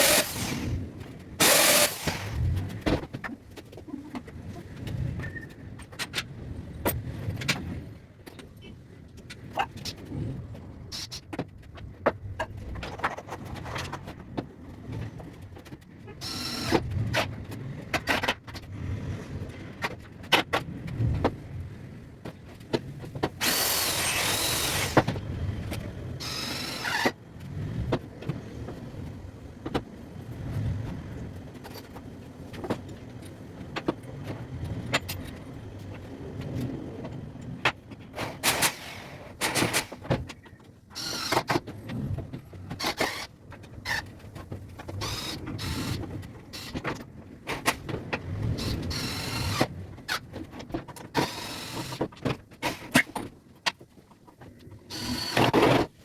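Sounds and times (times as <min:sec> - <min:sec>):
power tool running: 0:00.0 - 0:00.8, 0:01.4 - 0:02.4, 0:16.2 - 0:16.8, 0:23.4 - 0:25.1, 0:26.2 - 0:27.1, 0:41.0 - 0:41.4, 0:45.0 - 0:46.0, 0:48.6 - 0:49.7, 0:51.2 - 0:52.0, 0:54.9 - 0:55.6
knocks and clatter of wood and tools: 0:01.4 - 0:10.1, 0:11.0 - 0:15.9, 0:17.1 - 0:18.7, 0:30.8 - 0:38.8.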